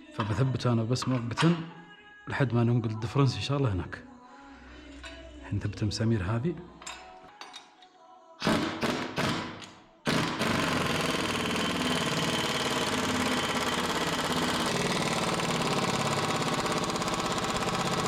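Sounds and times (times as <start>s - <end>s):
power tool tightening bolts: 8.4s - 18.0s.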